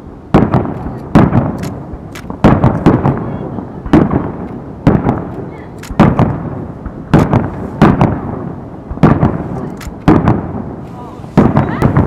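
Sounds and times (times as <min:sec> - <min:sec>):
echoing rumble: 0:00.0 - 0:12.0
firework booms: 0:00.3 - 0:12.0.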